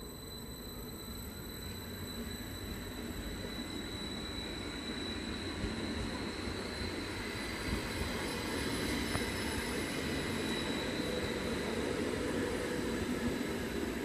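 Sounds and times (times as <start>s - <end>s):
faint high whine: 0.0s - 14.0s
train wheels rumbling on rails: 0.0s - 14.0s.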